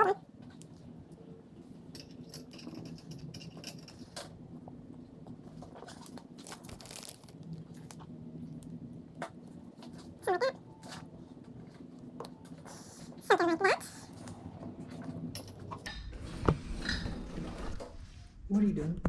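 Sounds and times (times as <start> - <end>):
small metal parts clicking: 1.9 - 4.2.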